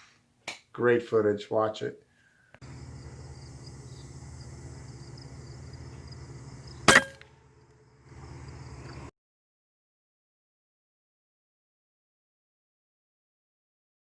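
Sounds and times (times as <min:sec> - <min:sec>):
steady low hum: 0:02.6 - 0:09.1
air rifle shot: 0:06.8 - 0:07.3.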